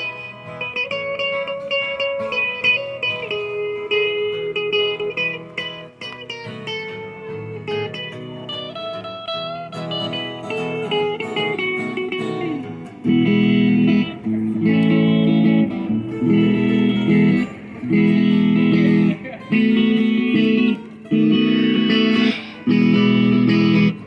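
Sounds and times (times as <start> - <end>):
guitar picked notes: 0.0 - 24.0
loud guitar chords: 0.0 - 24.0
country band playing: 9.9 - 24.0.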